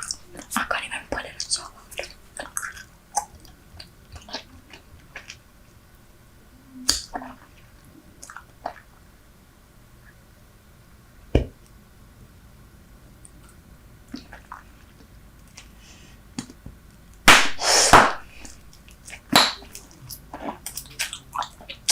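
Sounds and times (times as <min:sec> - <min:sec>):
chewing bubble gum: 0:01.4 - 0:05.4, 0:18.7 - 0:21.9.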